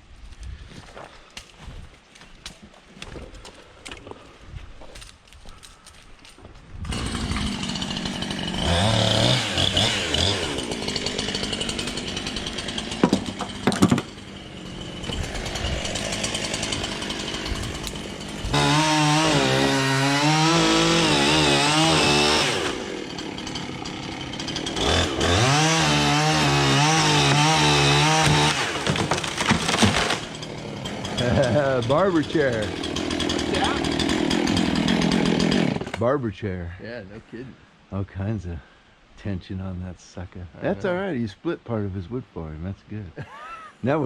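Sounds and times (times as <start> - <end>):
wood cracking: 1.3 - 36.0
chainsaw cutting wood: 6.8 - 36.0.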